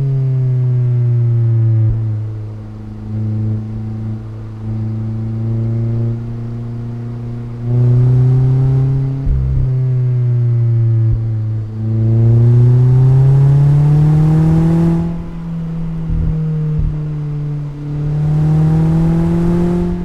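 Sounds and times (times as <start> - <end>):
car engine and exhaust: 0.0 - 20.0
gear change thump: 7.1 - 20.0.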